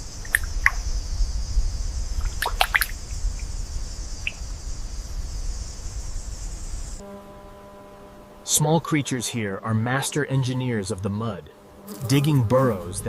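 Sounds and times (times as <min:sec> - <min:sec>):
low rumble of tidal water: 0:00.0 - 0:07.0
steady high hiss: 0:00.0 - 0:13.0
water drips: 0:00.2 - 0:00.9, 0:02.2 - 0:03.5, 0:04.2 - 0:04.4.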